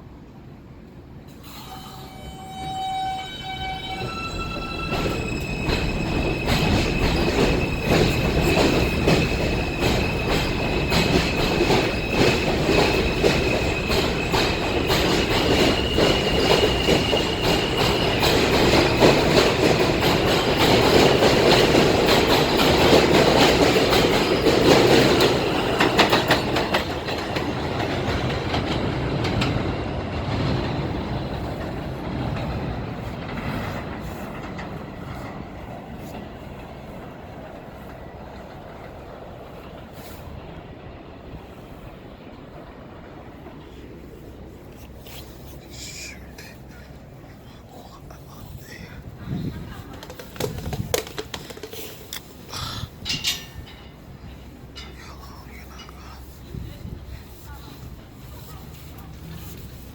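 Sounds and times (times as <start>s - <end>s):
train rumble: 0.0s - 59.9s
wheels clacking over rail joints: 4.0s - 41.4s, 49.5s - 56.1s.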